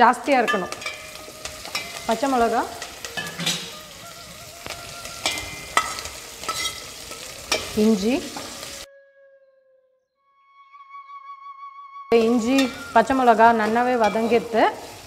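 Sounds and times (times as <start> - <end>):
food sizzling in hot oil: 0.0 - 8.9, 12.1 - 15.0
metal ladle scraping a pan: 0.4 - 8.9, 12.1 - 15.0.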